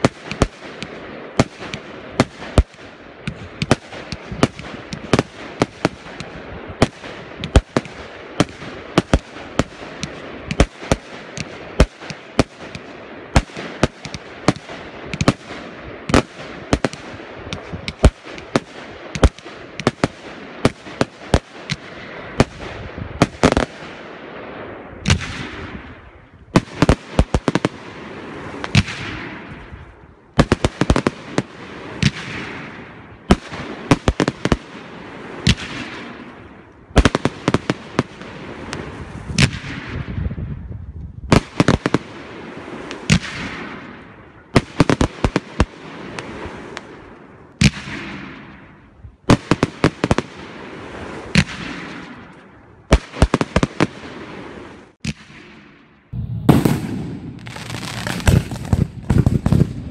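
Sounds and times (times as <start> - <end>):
firework shells bursting: 56.1 - 59.9
firework hiss: 56.2 - 59.7.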